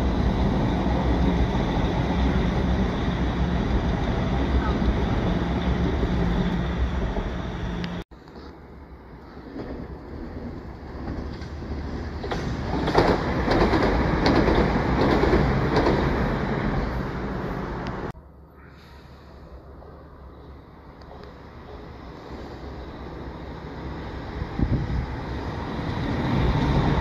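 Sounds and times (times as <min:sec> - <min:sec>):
train rumbling and humming: 0:00.0 - 0:27.0
train wheels clicking over rail joints: 0:09.3 - 0:16.4.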